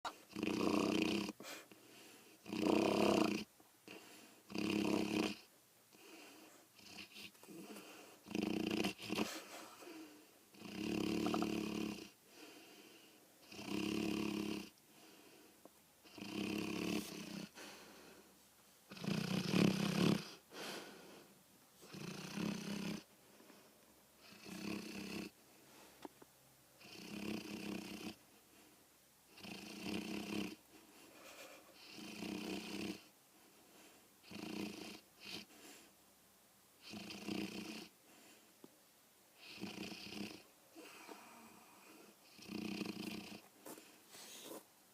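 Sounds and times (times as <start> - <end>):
dog snoring: 0.1 - 1.6, 2.4 - 12.6, 13.4 - 14.8, 16.0 - 17.7, 18.9 - 20.4, 21.8 - 23.1, 24.2 - 25.4, 26.8 - 28.2, 29.3 - 30.6, 31.2 - 33.1, 34.2 - 35.9, 36.8 - 38.0, 39.4 - 44.6
dog breathing: 14.9 - 26.0, 40.8 - 44.7.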